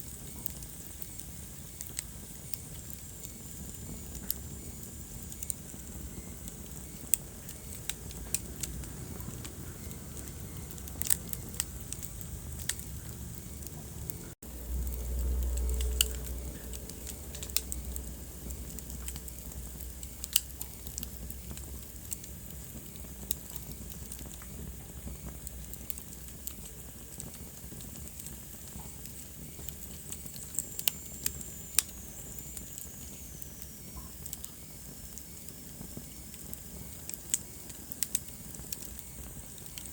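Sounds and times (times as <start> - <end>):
wood fire crackling: 0.0 - 39.9
low rumble: 8.0 - 21.3.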